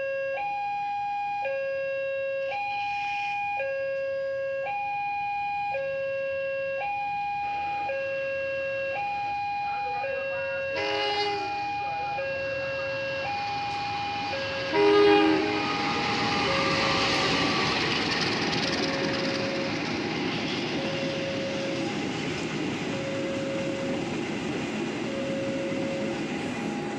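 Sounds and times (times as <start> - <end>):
two-tone crossing alarm: 0.0 - 26.9
train horn: 2.4 - 3.5, 10.6 - 12.1, 14.1 - 17.6
approaching train noise: 2.5 - 3.6, 8.9 - 26.9.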